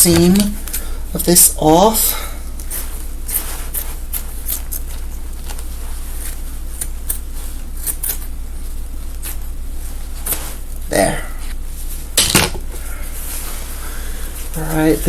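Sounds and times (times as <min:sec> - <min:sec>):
scissors snipping fabric: 0:07.8 - 0:08.3.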